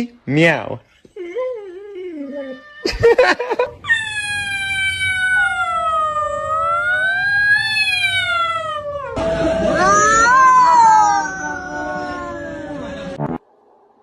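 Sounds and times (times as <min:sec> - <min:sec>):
cat meowing: 0:03.8 - 0:09.2, 0:09.8 - 0:13.1
pet howling: 0:03.8 - 0:13.2.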